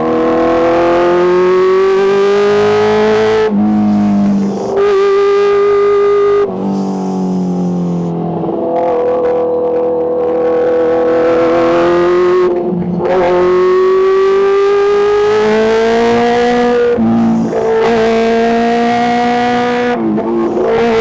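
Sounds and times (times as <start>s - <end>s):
motorcycle engine running under load: 0.0s - 21.0s.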